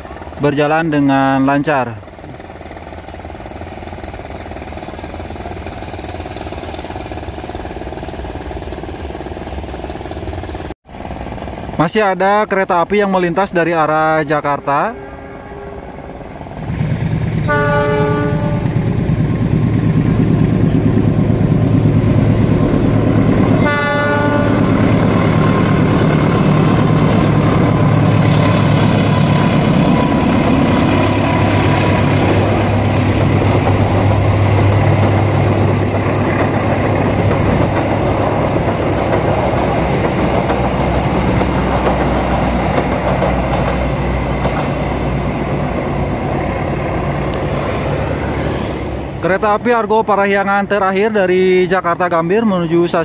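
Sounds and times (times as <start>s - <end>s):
train engine drone: 0.0s - 53.0s
train horn blast: 14.4s - 16.1s, 17.4s - 19.1s, 23.5s - 24.8s
wheels clattering over rails: 19.1s - 47.6s.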